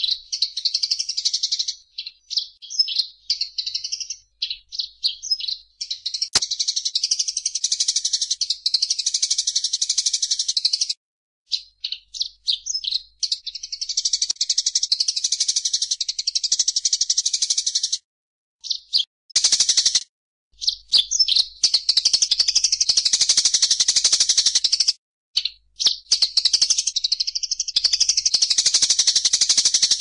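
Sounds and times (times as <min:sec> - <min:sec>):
bird chirps: 0:00.0 - 0:10.9, 0:11.5 - 0:18.0, 0:18.6 - 0:20.0, 0:20.6 - 0:30.0.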